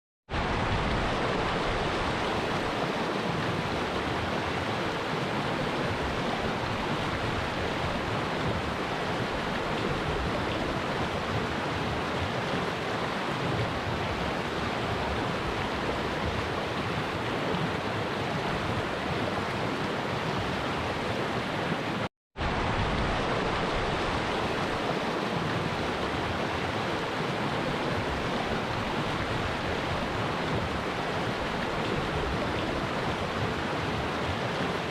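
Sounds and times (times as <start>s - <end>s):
stream of water rushing: 0.3s - 34.9s.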